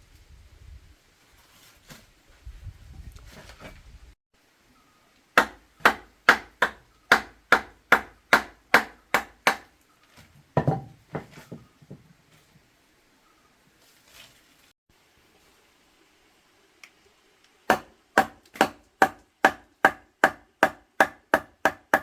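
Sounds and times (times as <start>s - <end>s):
sharp blows chopping wood: 5.4s - 9.7s, 17.7s - 22.0s
soft knocks: 10.6s - 12.0s.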